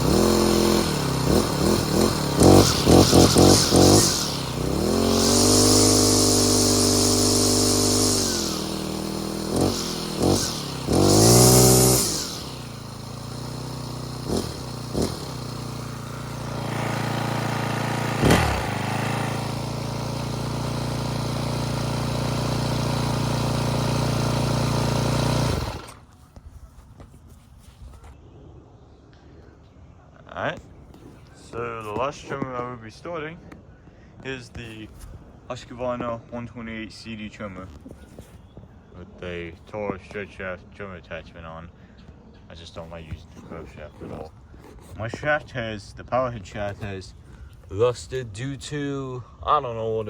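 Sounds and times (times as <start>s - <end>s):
string trimmer engine running: 0.0s - 26.2s.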